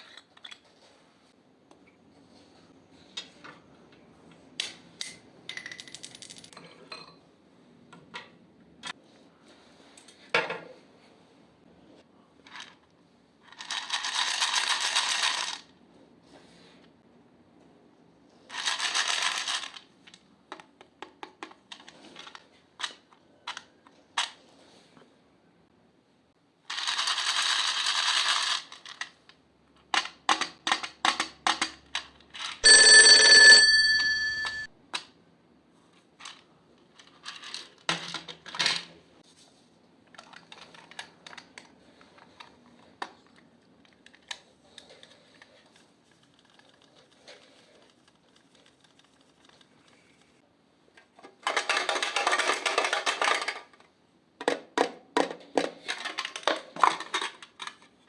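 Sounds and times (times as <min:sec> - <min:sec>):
loud ringing tone: 0:32.6 - 0:34.7
crackling rustling slime mixing: 0:39.3 - 0:50.5.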